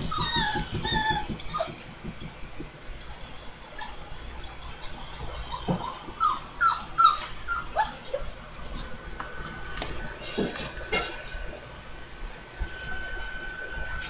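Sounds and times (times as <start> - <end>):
dog whimpering: 0.0 - 1.8, 3.7 - 4.0, 5.4 - 8.3.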